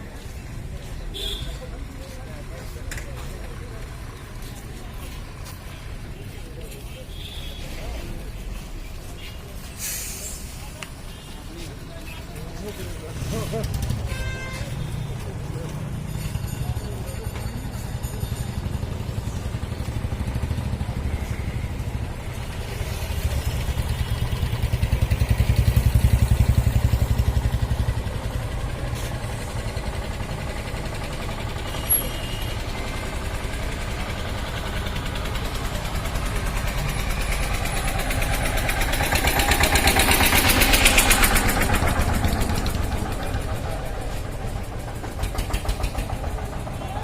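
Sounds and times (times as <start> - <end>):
diesel tractor engine running: 17.2 - 47.0.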